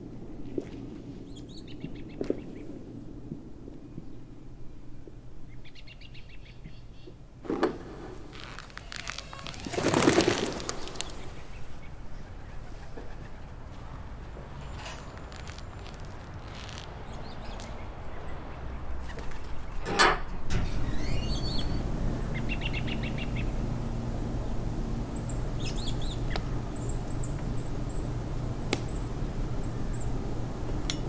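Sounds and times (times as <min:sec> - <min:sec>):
small birds chirping: 0:08.4 - 0:19.8, 0:20.7 - 0:23.7, 0:25.1 - 0:30.2
low rumble: 0:20.4 - 0:31.0.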